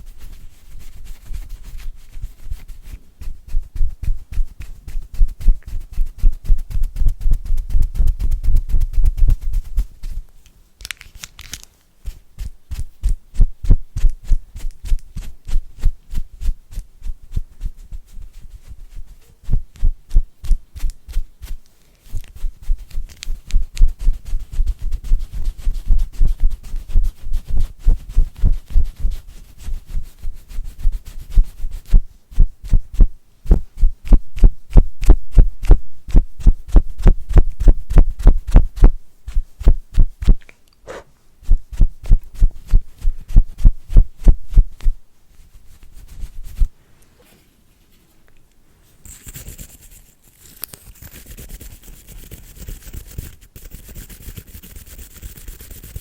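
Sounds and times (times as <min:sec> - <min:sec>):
rapid tapping with deep thuds: 0:03.2 - 0:10.2, 0:22.5 - 0:40.4.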